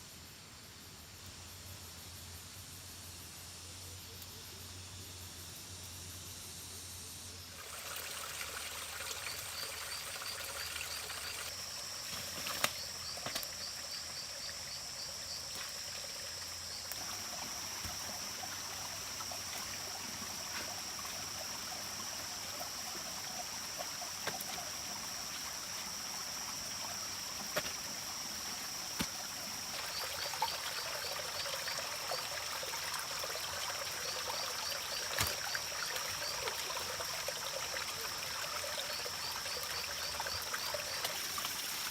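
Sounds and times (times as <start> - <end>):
water trickling: 7.6 - 41.9.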